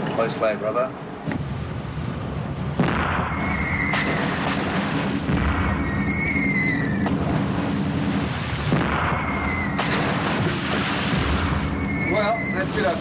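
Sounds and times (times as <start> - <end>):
boat engines droning: 0.0 - 13.0
gunfire blasts: 2.7 - 13.0
falling shell whistle: 3.2 - 4.3, 5.6 - 7.1, 9.0 - 9.9, 11.4 - 13.0.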